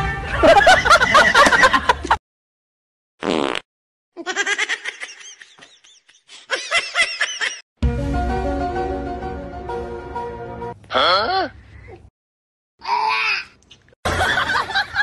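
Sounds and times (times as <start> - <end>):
person laughing: 4.2 - 7.6
background music: 7.8 - 10.8.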